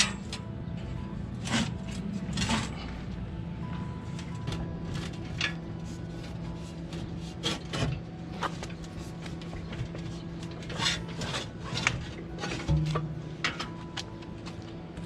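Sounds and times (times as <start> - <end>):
steady low hum: 0.0 - 15.0
metallic knocks and scrapes: 1.4 - 3.0, 9.7 - 14.0.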